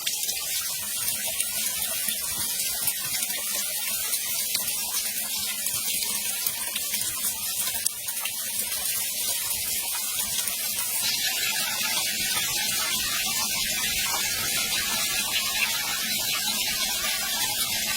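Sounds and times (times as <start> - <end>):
falling water rushing: 10.8 - 17.9.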